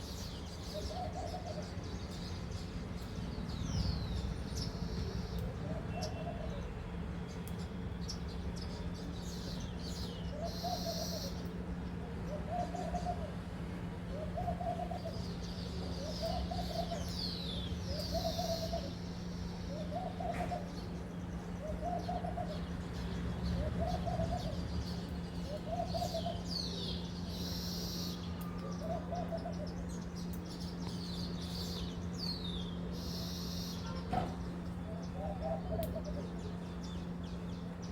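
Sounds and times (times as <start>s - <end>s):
flock of birds chirping: 0.0s - 37.9s
bird hooting: 5.6s - 6.7s, 10.3s - 11.5s, 12.3s - 13.4s, 14.1s - 20.9s, 21.6s - 22.7s, 23.6s - 24.7s, 25.5s - 29.7s, 34.9s - 36.6s.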